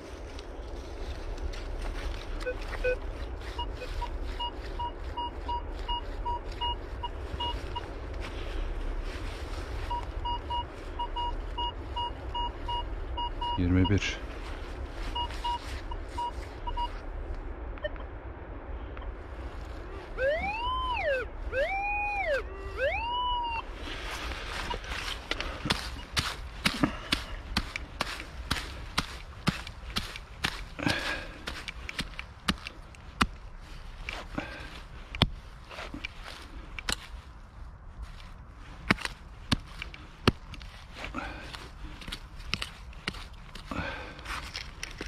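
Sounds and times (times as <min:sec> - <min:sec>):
metal detector beeps: 0:02.4 - 0:03.0, 0:03.6 - 0:07.9, 0:09.9 - 0:14.2, 0:15.1 - 0:17.0, 0:20.2 - 0:23.7
wind rumble on microphone: 0:14.2 - 0:45.0
digging in soil: 0:19.5 - 0:45.0.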